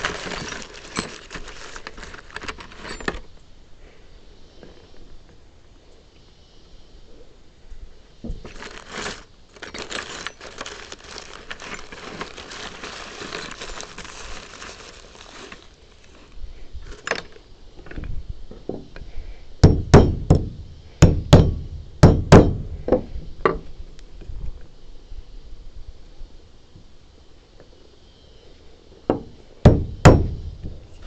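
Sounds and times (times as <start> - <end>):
wood scraping and rustling: 0.0 - 3.3, 8.2 - 18.9
hammer striking wood: 19.6 - 23.0.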